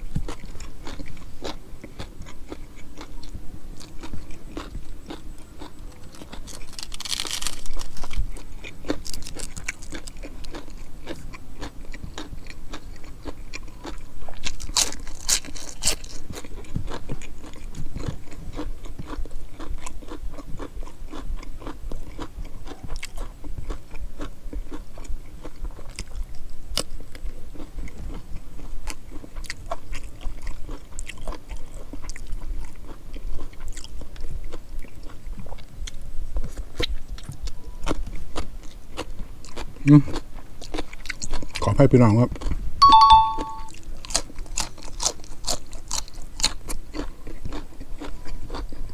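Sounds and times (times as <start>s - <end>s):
person chewing food: 0.0s - 41.6s, 42.4s - 48.9s
crunchy bites: 3.8s - 18.6s.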